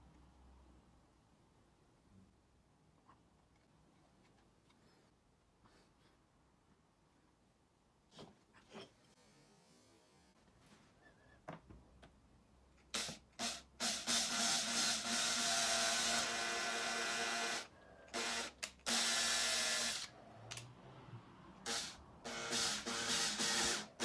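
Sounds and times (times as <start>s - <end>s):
cordless drill drilling into wood: 13.0s - 20.2s, 21.6s - 24.0s.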